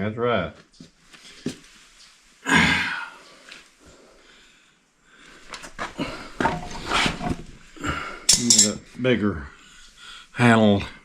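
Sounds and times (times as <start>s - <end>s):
metal tools clinking: 6.4s - 7.4s, 8.3s - 8.8s.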